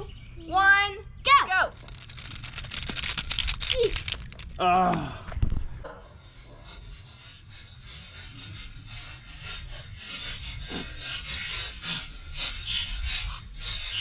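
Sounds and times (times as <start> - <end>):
toy trucks scraping rough surface: 1.8 - 4.6.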